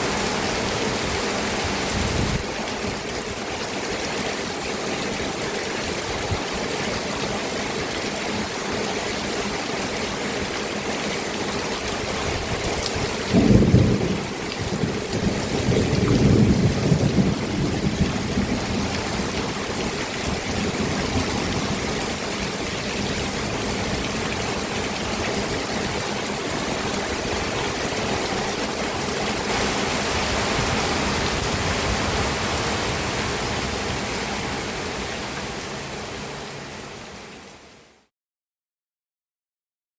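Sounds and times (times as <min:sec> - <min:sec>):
steady rain falling: 0:00.0 - 0:38.1
thunder clap rumbling: 0:12.3 - 0:24.6.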